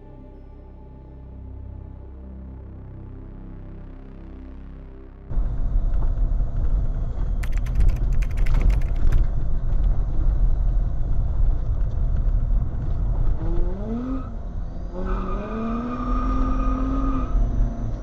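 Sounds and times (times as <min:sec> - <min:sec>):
car engine and tyres rumbling: 0:04.1 - 0:18.0
sharp clicks and rattles: 0:05.9 - 0:10.0.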